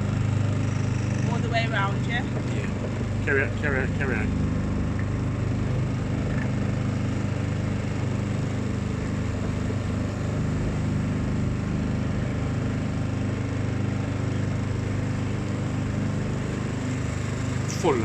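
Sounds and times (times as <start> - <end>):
motor boat engine humming: 0.0 - 18.0.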